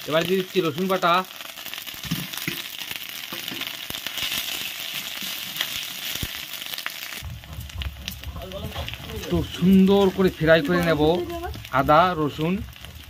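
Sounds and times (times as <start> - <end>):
onions sizzling in hot oil: 0.0 - 13.0
low hum: 7.2 - 13.0.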